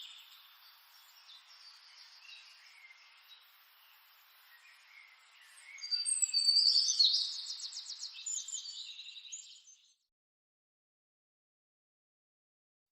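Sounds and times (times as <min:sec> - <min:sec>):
songbirds chirping: 0:00.0 - 0:10.1.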